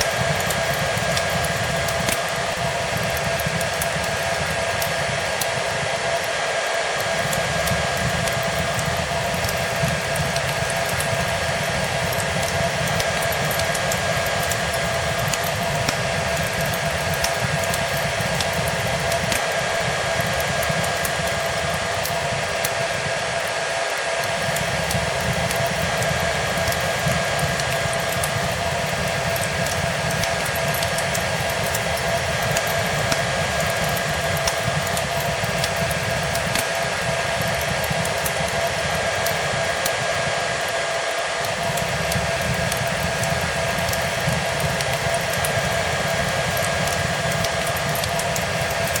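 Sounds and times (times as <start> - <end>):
fireplace crackling: 0.0 - 49.0
hair dryer running: 0.0 - 49.0.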